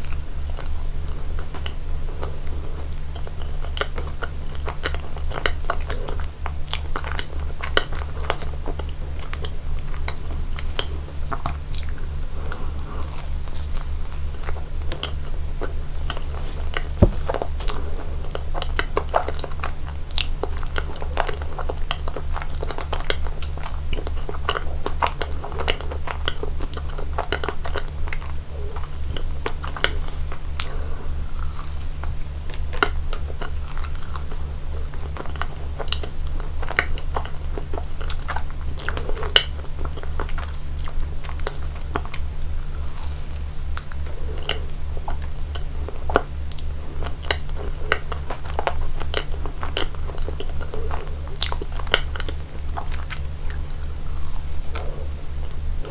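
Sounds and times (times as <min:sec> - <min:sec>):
steady low hum: 0:10.2 - 0:18.6
sharp knock: 0:17.0 - 0:17.4
chewing and biting cake: 0:20.1 - 0:55.9.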